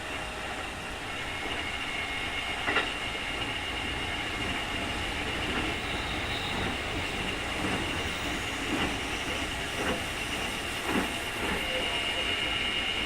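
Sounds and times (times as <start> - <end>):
electric train motor whine: 0.0 - 9.9
wheels rumbling on track: 2.6 - 12.3.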